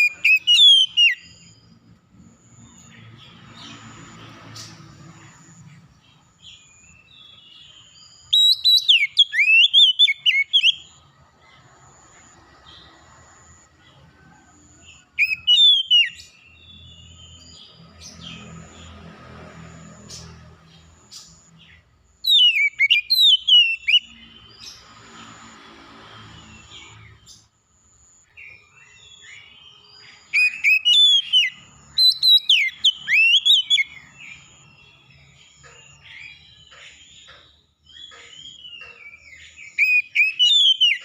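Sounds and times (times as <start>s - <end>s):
songbird whistled phrases: 0.0s - 1.4s, 8.3s - 10.9s, 15.2s - 16.2s, 22.2s - 24.1s, 30.3s - 34.0s, 39.7s - 41.0s.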